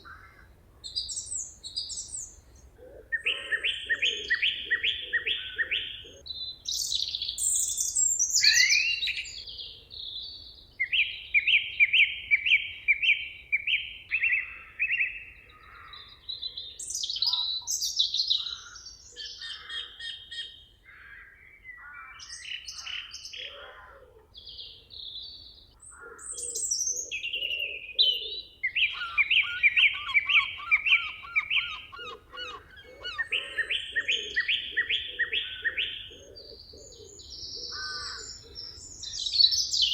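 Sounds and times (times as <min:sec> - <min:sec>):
whistled and chirped bird calls: 0:03.2 - 0:20.6, 0:24.5 - 0:39.9
low repeated bird notes: 0:24.4 - 0:39.9.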